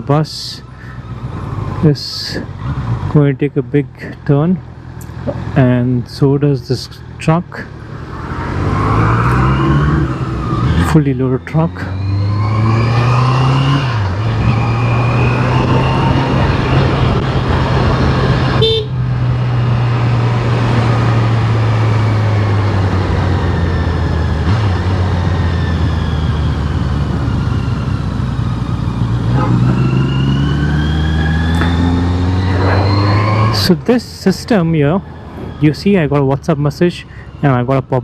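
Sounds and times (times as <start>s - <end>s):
short horn toot: 18.6s - 19.0s.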